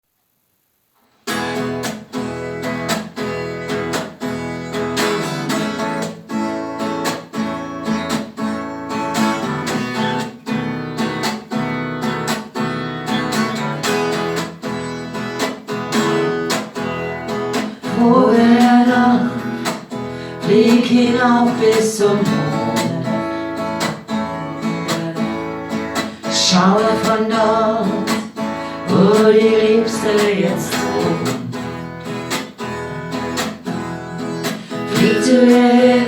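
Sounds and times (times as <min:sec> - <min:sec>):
acoustic guitar strumming: 0:01.2 - 0:36.0
person singing: 0:17.8 - 0:19.7, 0:20.3 - 0:23.3, 0:24.4 - 0:31.7, 0:34.2 - 0:36.0.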